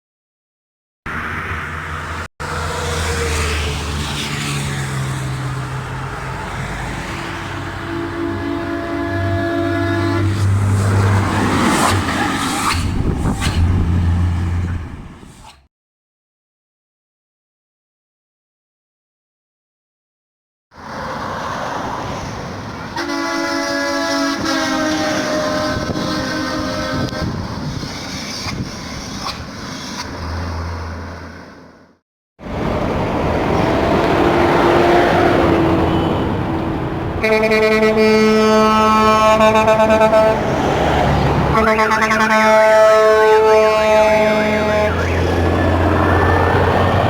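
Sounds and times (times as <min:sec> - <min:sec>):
diesel bus engine passing: 0:01.1 - 0:15.5, 0:20.8 - 0:47.0
tyre and road noise: 0:01.1 - 0:15.7, 0:20.7 - 0:47.0
multi-tone air horn: 0:07.7 - 0:10.6, 0:23.0 - 0:27.4, 0:37.2 - 0:40.5, 0:41.5 - 0:45.3.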